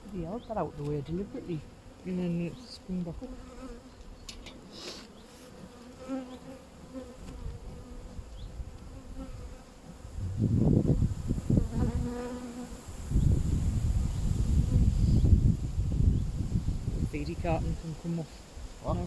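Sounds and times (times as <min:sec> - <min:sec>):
honeybees humming: 0:00.0 - 0:15.4
low rumble on microphone: 0:10.0 - 0:12.1.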